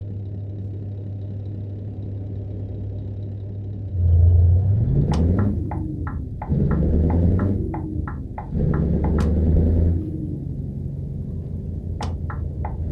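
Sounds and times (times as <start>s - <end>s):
truck engine idling and revving: 0.0s - 12.9s
regular sharp knocks: 5.0s - 10.1s, 12.0s - 12.9s.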